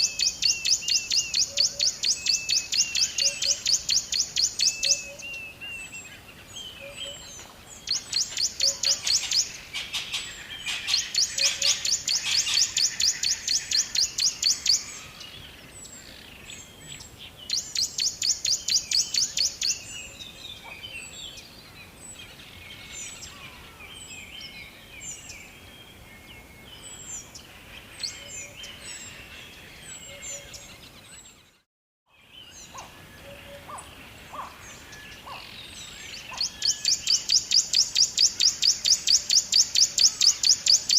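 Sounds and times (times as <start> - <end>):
bird repeating high chirps: 0.0 - 5.2, 7.9 - 9.5, 10.7 - 14.9, 17.5 - 19.8, 36.3 - 40.9
other birds chirping: 0.0 - 40.9.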